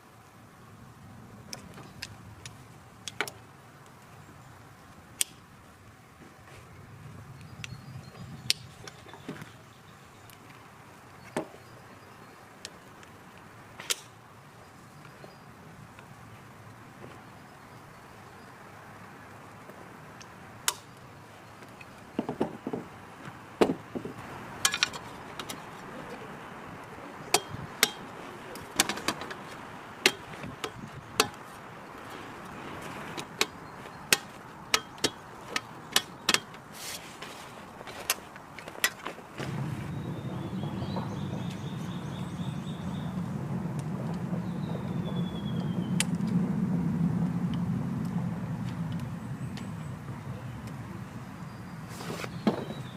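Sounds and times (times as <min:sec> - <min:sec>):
faint steady hiss: 0:00.0 - 0:52.9.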